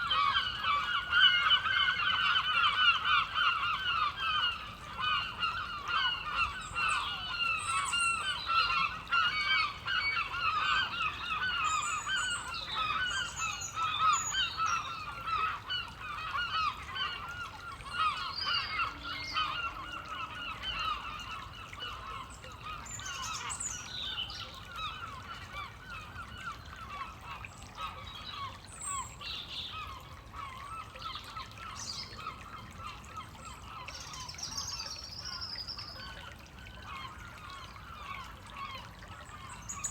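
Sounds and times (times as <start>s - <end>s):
flock of gulls calling: 0.0s - 29.1s
stream trickling: 0.0s - 39.9s.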